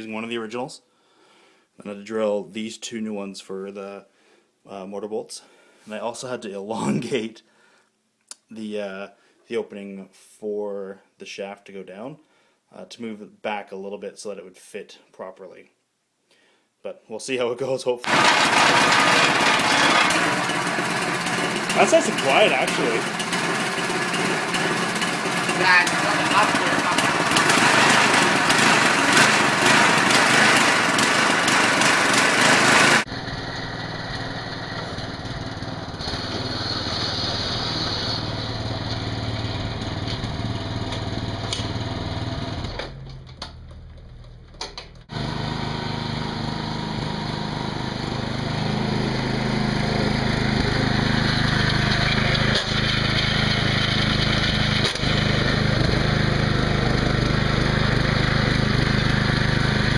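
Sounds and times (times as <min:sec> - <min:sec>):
small garden tractor engine running: 0:18.1 - 0:59.9.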